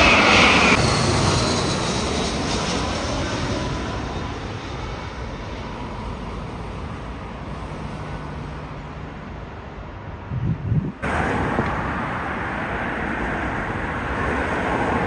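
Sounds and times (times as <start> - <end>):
jet airliner engines rumbling: 0.0 - 15.0
background traffic noise: 4.7 - 15.0.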